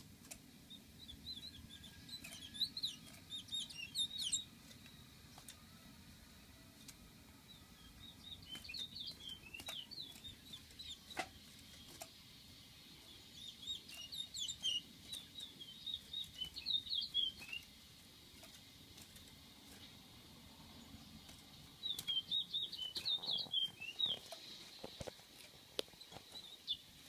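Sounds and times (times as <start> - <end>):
bird chattering: 1.0 - 4.5, 13.4 - 17.7, 21.8 - 24.2.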